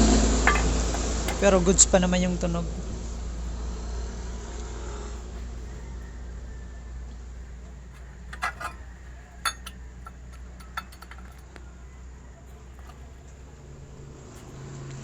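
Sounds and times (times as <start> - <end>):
light metallic clinks: 0.4 - 1.7, 7.9 - 11.6, 12.5 - 14.6.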